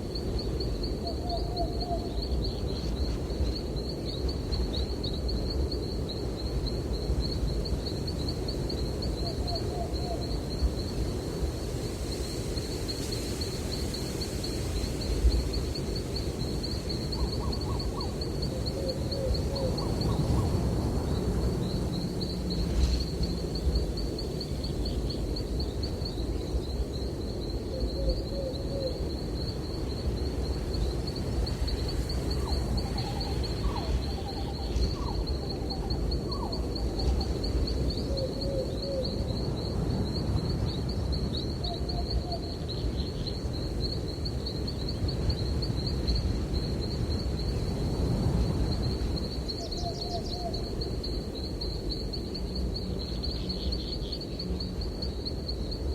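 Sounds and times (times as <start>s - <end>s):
high pulsing insect trill: 0.0s - 55.9s
low rumble of breeze: 0.0s - 55.9s.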